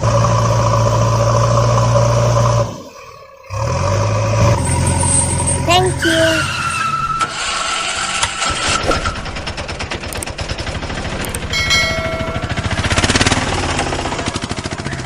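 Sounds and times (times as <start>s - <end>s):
rapid mechanical rattle: 7.4s - 15.0s
short ringing tone: 11.5s - 12.8s.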